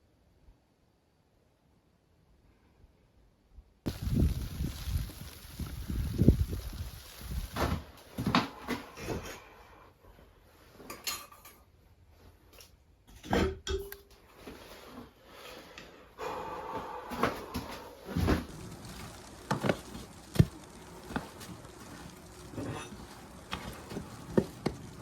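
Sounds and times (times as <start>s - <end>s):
metal pots and utensils clinking: 10.9s - 11.6s, 13.1s - 14.1s, 22.3s - 24.8s.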